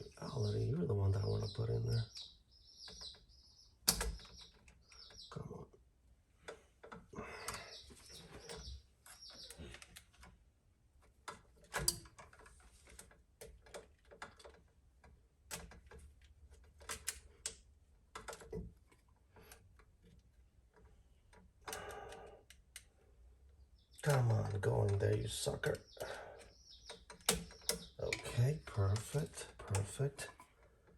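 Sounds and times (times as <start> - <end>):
electrical wires and outlet clicking: 3.8 - 5.4, 11.0 - 23.0, 23.9 - 30.9.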